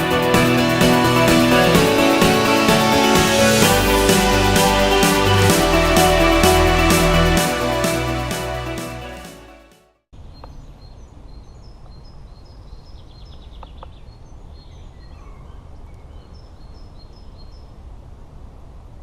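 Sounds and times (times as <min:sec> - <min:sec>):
small birds chirping: 0:10.2 - 0:17.8.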